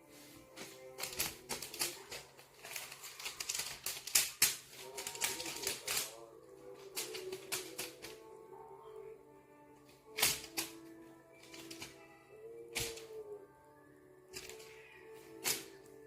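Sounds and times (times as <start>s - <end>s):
faint music: 0.0s - 16.0s
rapid clicking and tapping: 1.0s - 6.2s, 6.8s - 8.2s, 10.2s - 10.8s, 11.4s - 12.0s, 12.7s - 13.2s, 15.4s - 15.8s.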